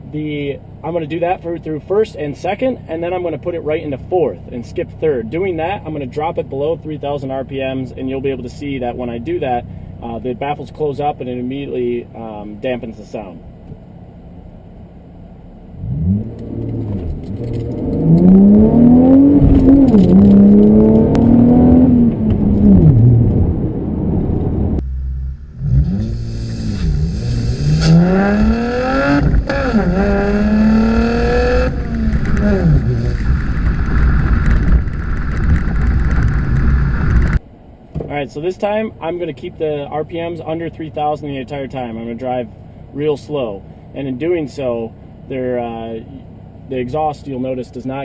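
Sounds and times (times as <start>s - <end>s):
car engine accelerating: 13.5s - 37.4s.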